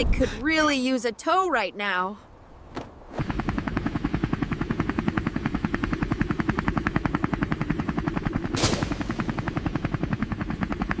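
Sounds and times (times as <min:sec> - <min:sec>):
helicopter rotor beating: 0:03.1 - 0:11.0.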